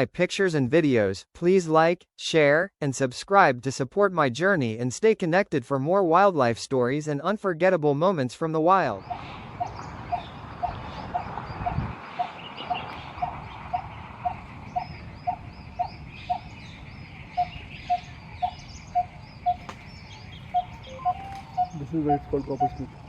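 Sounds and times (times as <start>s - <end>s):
bird calling hollow tuk notes: 8.9s - 23.0s
faint bird chirps: 9.0s - 23.0s.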